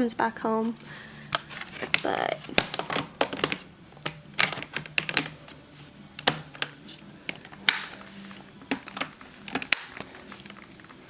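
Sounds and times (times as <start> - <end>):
plastic parts clicking and knocking: 1.3 - 5.6, 6.2 - 8.0, 8.6 - 11.0.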